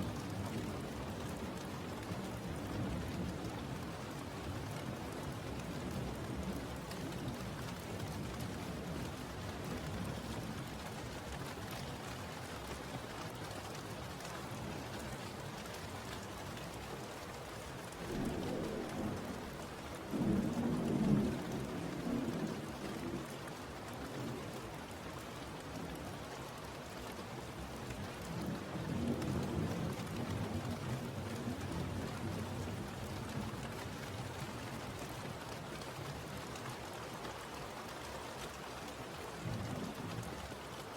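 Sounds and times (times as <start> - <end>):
steady rain: 0.0 - 40.9
thunder rumbling: 18.1 - 19.4, 20.1 - 23.2.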